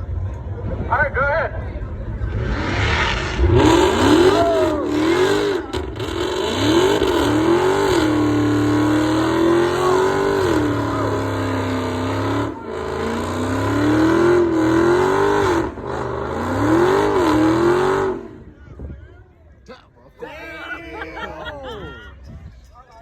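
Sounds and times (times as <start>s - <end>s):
car engine revving hard: 2.2s - 18.5s.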